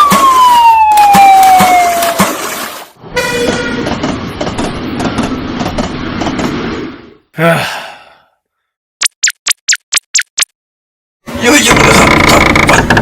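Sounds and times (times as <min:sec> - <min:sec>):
siren: 0:00.0 - 0:02.3
train horn toot: 0:03.1 - 0:03.9.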